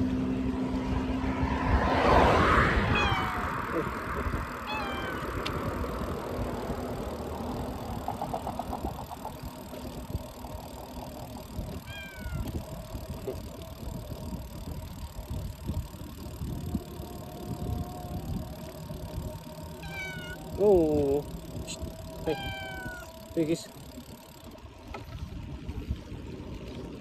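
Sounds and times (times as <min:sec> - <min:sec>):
bicycle riding rumble: 0:00.0 - 0:27.0
wind buffeting microphone: 0:00.0 - 0:27.0
quick ticks: 0:05.2 - 0:17.4.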